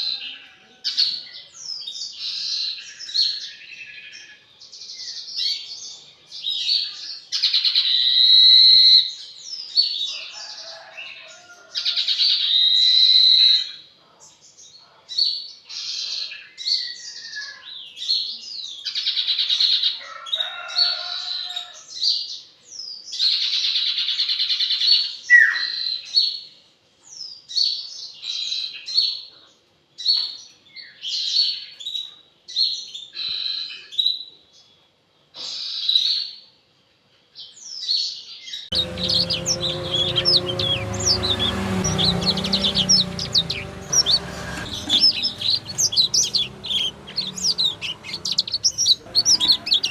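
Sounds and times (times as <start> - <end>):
songbird singing: 38.5 - 49.9.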